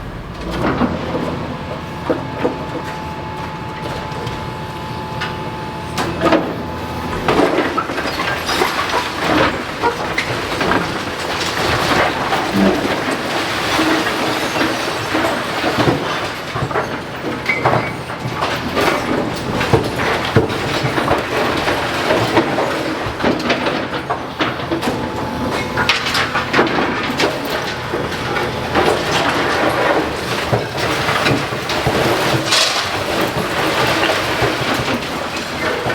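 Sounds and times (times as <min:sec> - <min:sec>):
demolition machinery rumble: 0:00.0 - 0:35.9
masonry and rubble clattering: 0:05.2 - 0:35.9.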